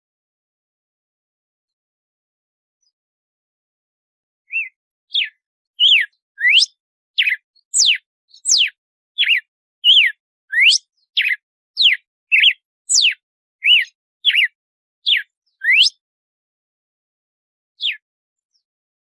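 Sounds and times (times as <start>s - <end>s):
bird singing whistled notes: 4.5s - 16.0s, 17.8s - 18.7s.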